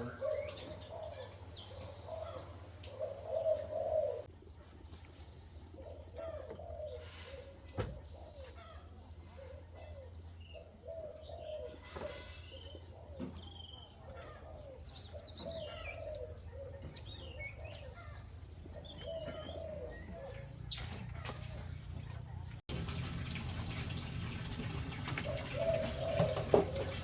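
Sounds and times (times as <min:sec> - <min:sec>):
birds warbling: 0:00.0 - 0:04.3, 0:05.7 - 0:22.6, 0:23.2 - 0:27.0.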